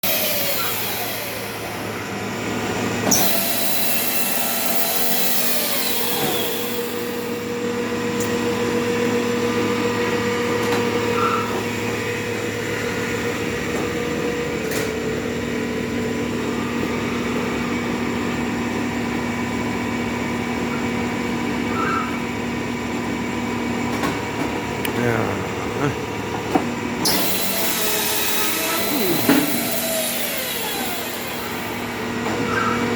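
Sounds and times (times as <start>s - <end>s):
machine motor droning hum: 6.6s - 32.9s.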